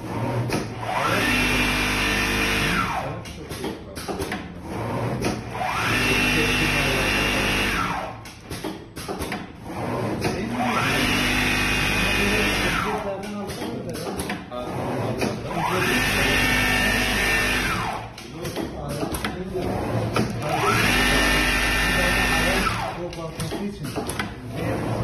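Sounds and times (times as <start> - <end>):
sewing machine motor whining: 0.0 - 3.2, 4.6 - 8.3, 9.6 - 13.2, 14.5 - 18.3, 19.6 - 23.2
short clicks and knocks: 3.2 - 4.5, 8.2 - 9.6, 13.2 - 14.5, 18.1 - 19.5, 23.1 - 24.4.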